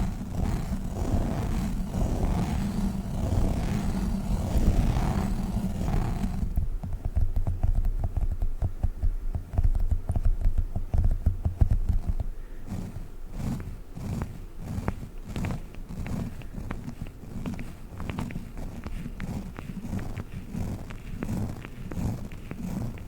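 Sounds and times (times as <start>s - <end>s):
soft sticky tapping: 0.0s - 23.0s
sticky gel toy squishing: 9.6s - 23.0s.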